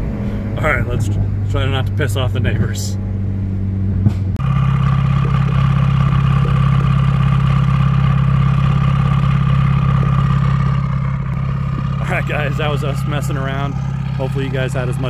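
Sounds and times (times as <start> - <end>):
loud car engine at raised revs: 0.0 - 15.0.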